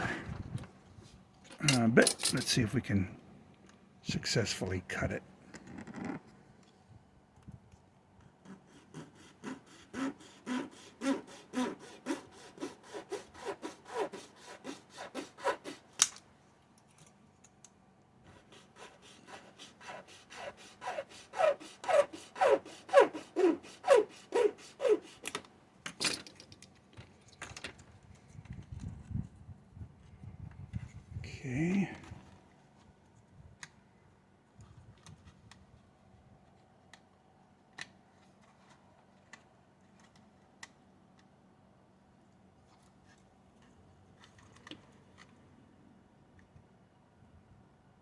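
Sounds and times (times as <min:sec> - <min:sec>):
hand saw cutting: 0:08.4 - 0:16.0, 0:18.3 - 0:25.4.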